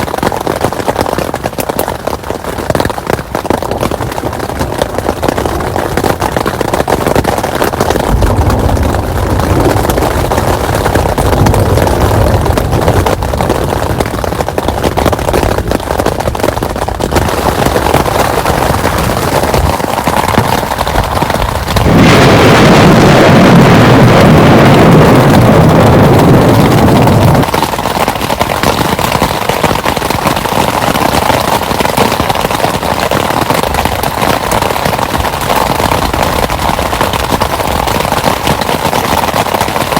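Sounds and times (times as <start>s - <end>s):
heavy rain: 0.0s - 39.9s
thunder rolling: 5.4s - 29.8s
loud thunder crack: 7.6s - 14.4s, 17.1s - 27.6s.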